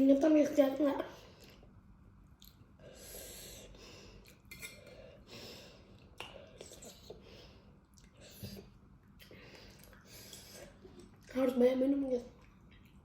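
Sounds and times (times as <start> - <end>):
person breathing: 2.8 - 6.0.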